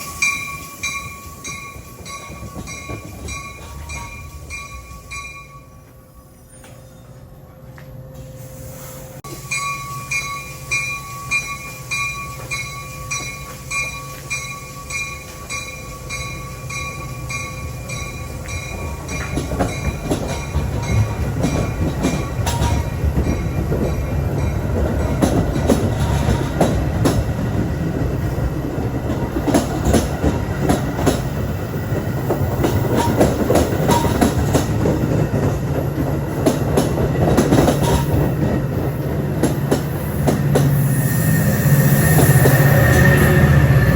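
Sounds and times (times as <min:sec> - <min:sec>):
bell dinging: 0:00.0 - 0:06.8, 0:09.3 - 0:24.6
train rumbling by: 0:00.0 - 0:43.9
wheels clattering over rail joints: 0:12.3 - 0:40.8.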